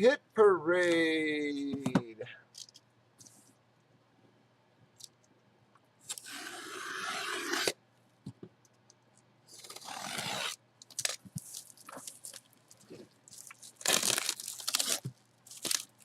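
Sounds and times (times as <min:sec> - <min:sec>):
cardboard box scraping open: 0:09.7 - 0:10.6.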